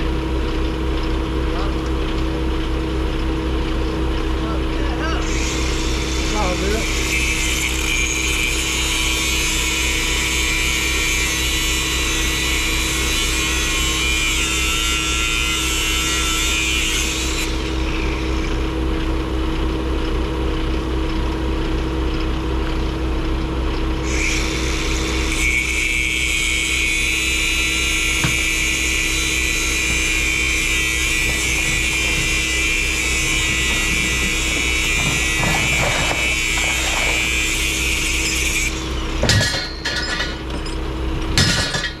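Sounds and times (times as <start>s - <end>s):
vehicle engine running: 0.0s - 6.8s, 17.5s - 24.1s.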